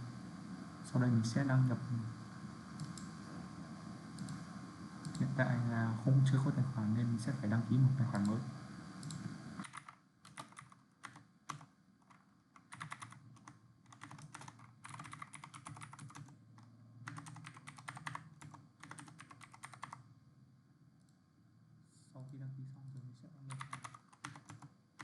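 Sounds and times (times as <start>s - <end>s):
faint keyboard typing: 2.8s - 3.1s, 4.2s - 4.4s, 5.0s - 5.3s, 9.0s - 20.1s, 22.2s - 25.0s.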